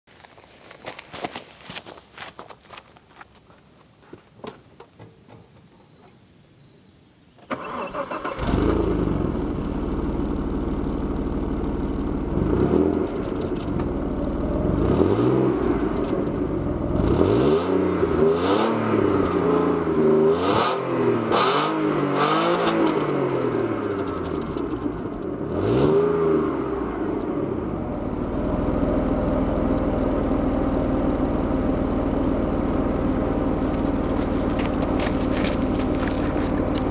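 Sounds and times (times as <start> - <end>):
car engine starting and revving: 7.5 - 36.9.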